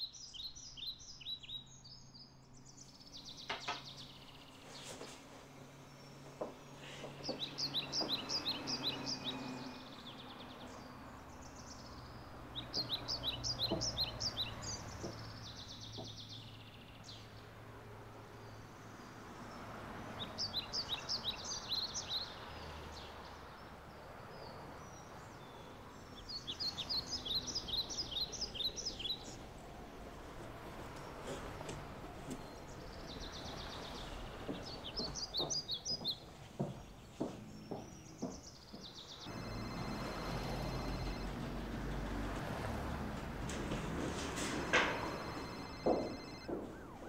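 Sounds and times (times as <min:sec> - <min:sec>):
songbird chirping trills: 0:00.0 - 0:43.5, 0:44.2 - 0:47.0.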